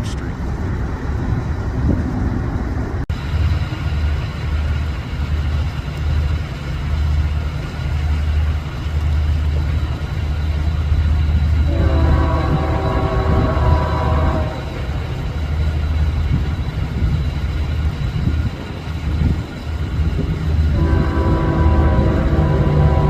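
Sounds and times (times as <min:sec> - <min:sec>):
diesel locomotives rumbling: 0:00.0 - 0:23.0
chord of pitched tones: 0:20.6 - 0:23.0.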